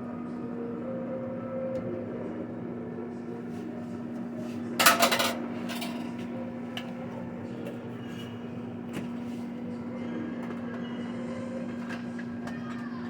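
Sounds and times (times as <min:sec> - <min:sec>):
cooking pot and utensil clatter: 0:04.8 - 0:06.2.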